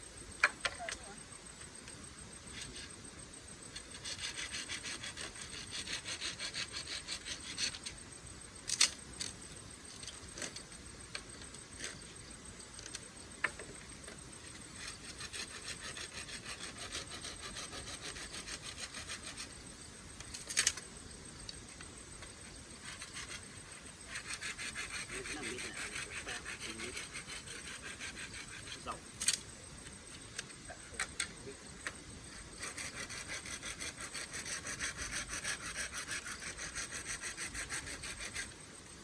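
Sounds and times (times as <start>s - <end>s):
hand tool rasping: 24.1s - 28.9s, 32.6s - 38.5s.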